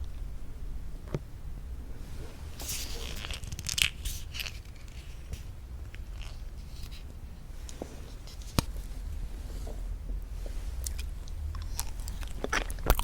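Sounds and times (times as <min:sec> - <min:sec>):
wet smacking mouth sounds: 0:10.8 - 0:13.0.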